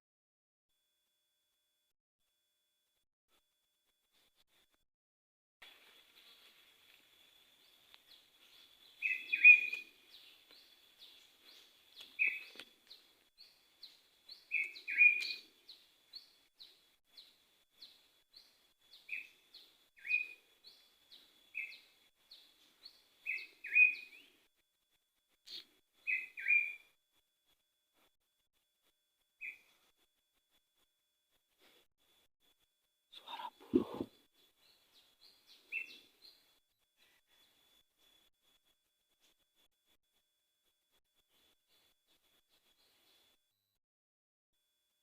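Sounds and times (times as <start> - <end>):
lower-pitched bird call: 9.0 - 9.9, 33.2 - 34.1.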